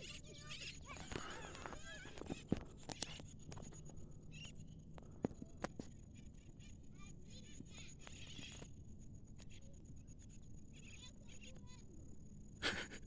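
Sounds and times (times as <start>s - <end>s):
faint bird chirps: 2.8s - 5.0s.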